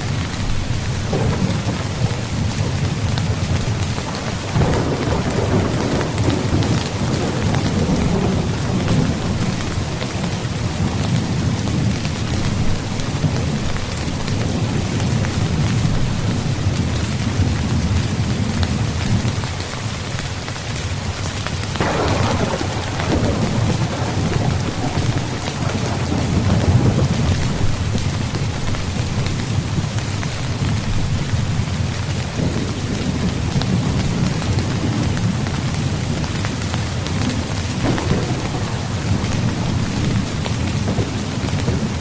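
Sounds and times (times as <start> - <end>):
thunder rumbling: 0.0 - 19.4, 21.8 - 42.0
rain on tent fabric: 0.0 - 42.0.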